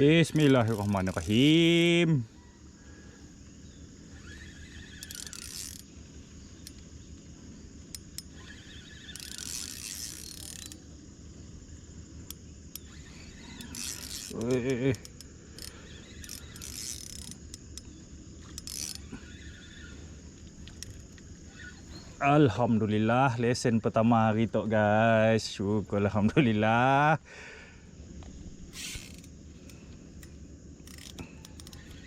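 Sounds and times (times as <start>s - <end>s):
fishing reel ratcheting whir: 0.2s - 1.9s, 3.9s - 7.0s, 7.8s - 10.9s, 12.2s - 21.8s, 28.7s - 32.0s.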